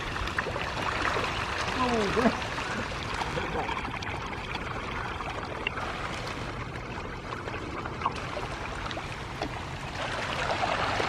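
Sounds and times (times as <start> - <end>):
fish splashing and slurping: 0.0 - 11.0.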